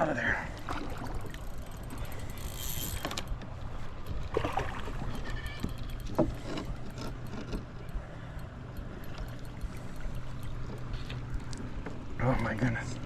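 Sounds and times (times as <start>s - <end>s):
fishing gear knocking and rattling: 1.0s - 4.6s, 5.2s - 12.1s.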